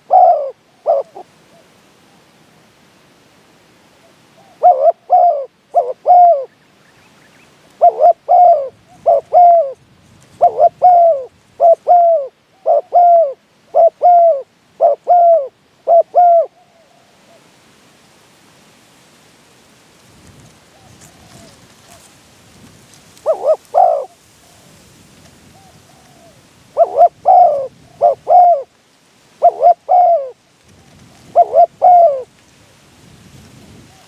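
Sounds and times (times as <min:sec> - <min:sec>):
dove cooing: 0:00.0 - 0:01.7, 0:04.4 - 0:06.6, 0:07.8 - 0:17.5, 0:20.7 - 0:22.1, 0:23.2 - 0:24.8, 0:25.4 - 0:28.8, 0:29.4 - 0:32.4.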